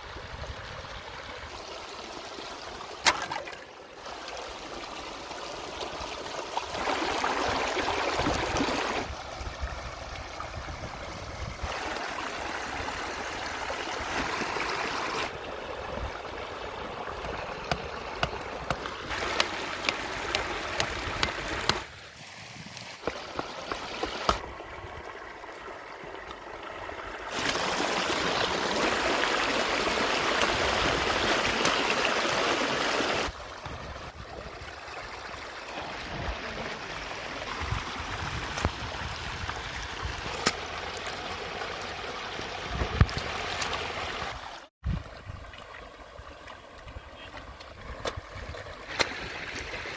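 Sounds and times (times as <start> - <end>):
sharp clicks or small splashes: 3.0 - 3.7
river water rushing: 16.2 - 24.4, 27.3 - 33.4.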